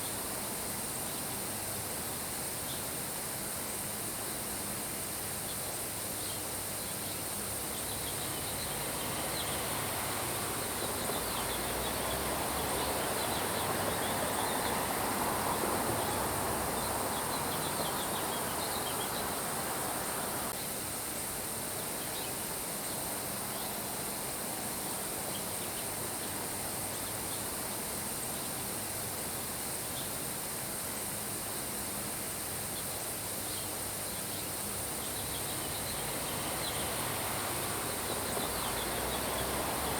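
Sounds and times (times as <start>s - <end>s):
high insect trill: 5.2s - 39.9s
steady rain: 8.3s - 20.6s, 35.4s - 39.9s
birds chirping: 35.0s - 39.8s.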